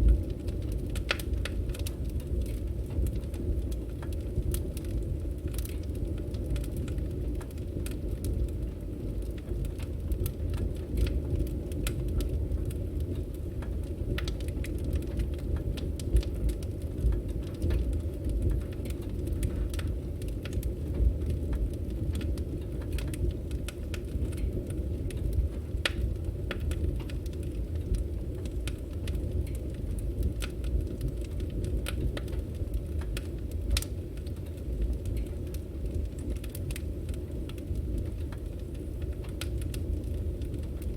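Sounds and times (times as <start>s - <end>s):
fire crackling and popping: 0.0s - 40.9s
wood fire rumbling: 0.0s - 40.9s.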